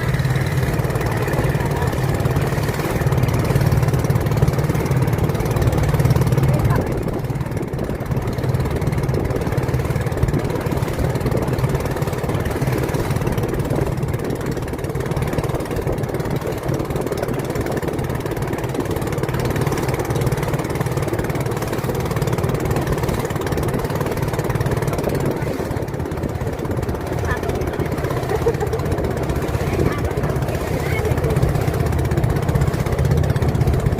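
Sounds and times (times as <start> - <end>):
boat engine droning: 0.0 - 33.9.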